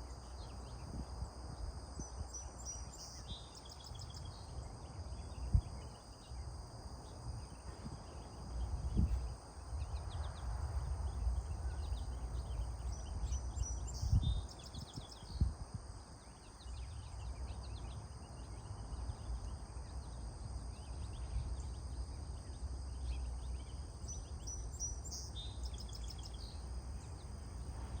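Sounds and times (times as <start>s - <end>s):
low wind rumble: 4.2s - 16.2s, 26.1s - 28.0s.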